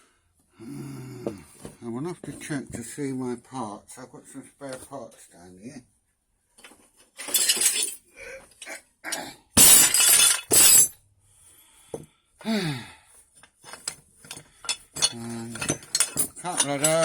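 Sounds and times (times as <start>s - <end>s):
metal parts clattering: 7.2s - 8.0s, 9.6s - 10.9s, 13.7s - 17.0s.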